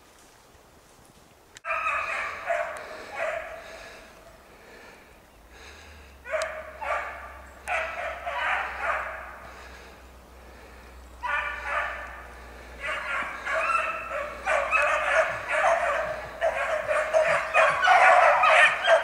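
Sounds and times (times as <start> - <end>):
dog baying: 12.8 - 19.0.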